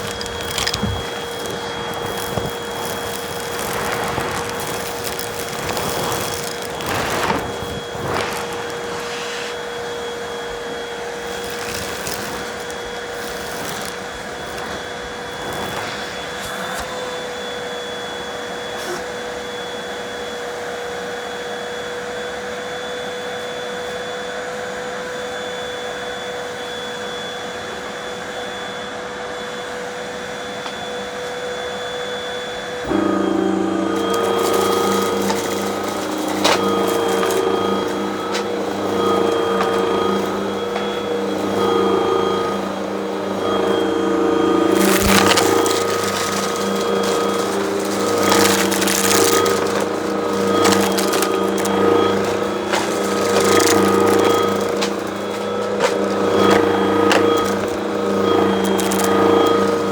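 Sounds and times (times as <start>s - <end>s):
short crackles: 0.0s - 9.8s, 11.2s - 17.0s, 33.9s - 42.5s, 44.7s - 59.9s
vacuum cleaner running: 0.0s - 59.9s.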